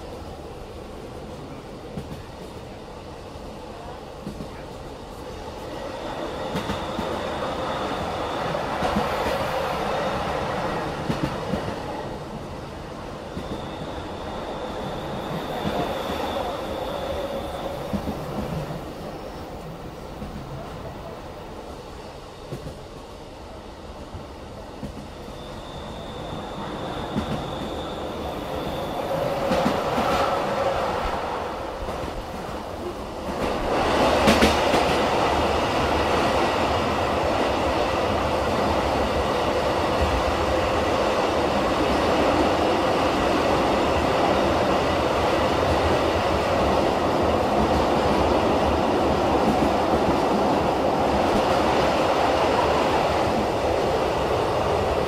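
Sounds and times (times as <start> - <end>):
train wheels on rails: 0.0 - 55.0
thin high whine: 13.2 - 18.3.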